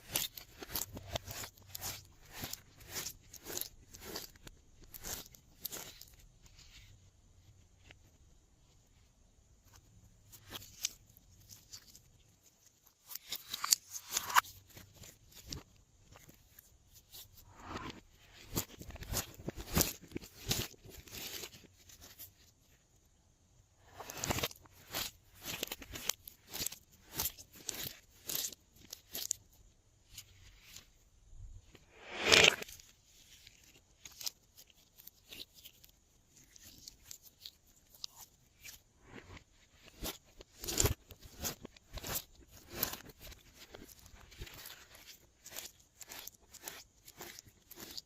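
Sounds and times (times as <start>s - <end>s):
sticky slime squishes: 0.0s - 6.5s, 33.6s - 48.0s.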